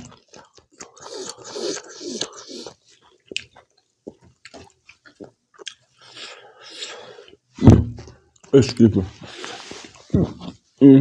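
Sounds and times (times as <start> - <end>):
person chewing: 0.0 - 7.5, 9.2 - 10.6.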